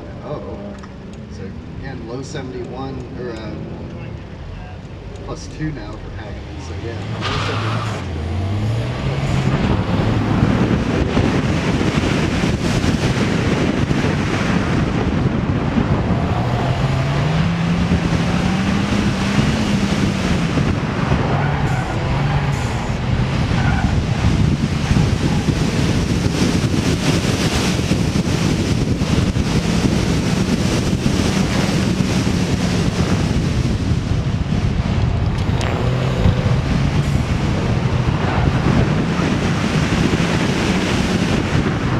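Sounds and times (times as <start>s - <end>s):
car engine revving: 0.0s - 41.9s
road noise: 0.0s - 41.9s
wind noise on microphone: 0.0s - 41.9s.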